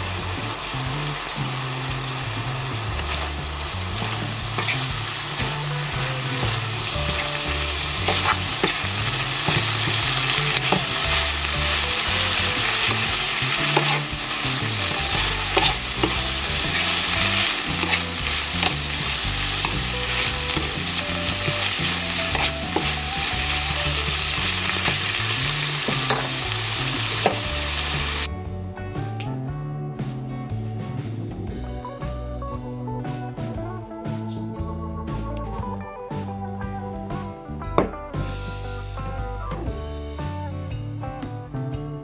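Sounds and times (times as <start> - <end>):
food sizzling in hot oil: 0.0 - 28.3
utensil clicking against pan: 8.0 - 26.5.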